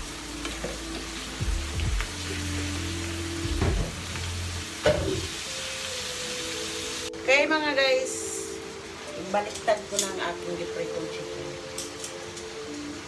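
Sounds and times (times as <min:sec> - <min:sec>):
deep-frying oil sizzle: 0:00.0 - 0:07.2.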